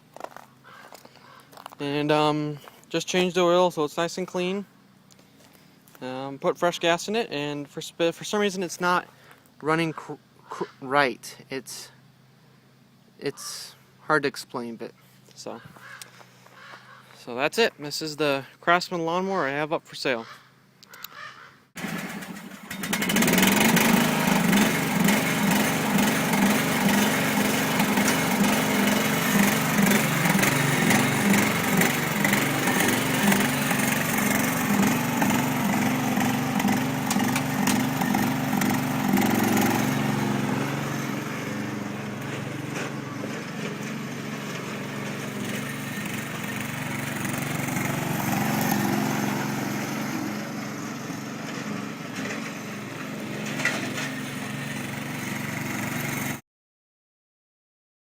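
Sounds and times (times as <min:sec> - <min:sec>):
riding mower engine pulsing: 0:21.8 - 0:56.4.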